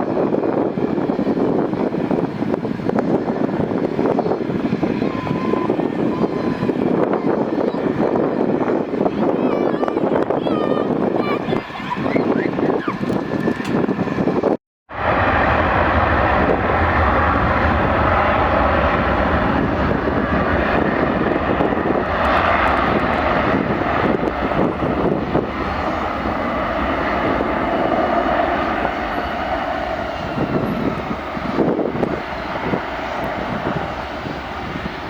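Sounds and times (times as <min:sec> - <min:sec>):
jet engines running: 0:10.9 - 0:35.0.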